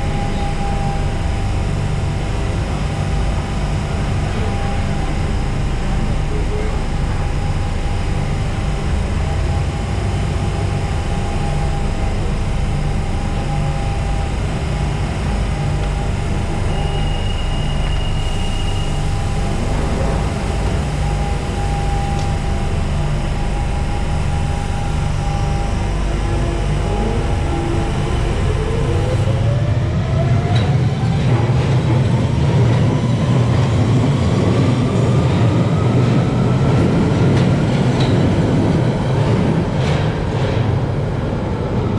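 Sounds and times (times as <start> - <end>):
subway train rumbling: 0.0 - 41.9
high whistle: 16.5 - 19.5.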